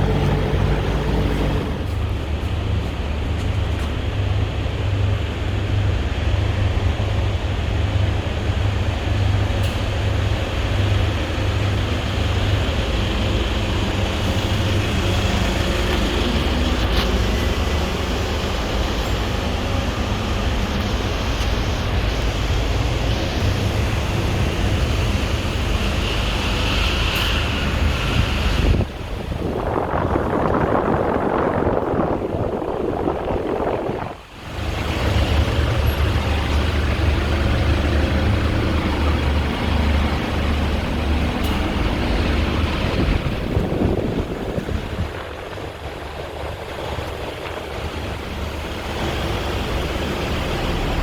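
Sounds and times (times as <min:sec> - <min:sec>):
air conditioner unit running: 0:00.0 - 0:02.1.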